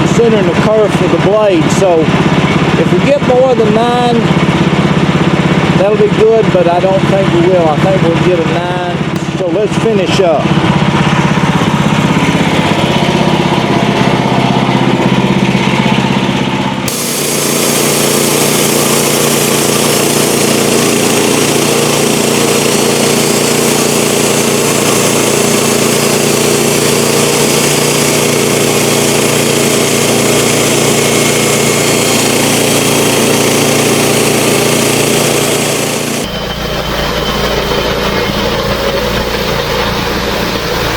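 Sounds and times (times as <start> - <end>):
sawmill engine running: 0.0 - 40.9
saw cutting wood hiss: 16.9 - 36.3.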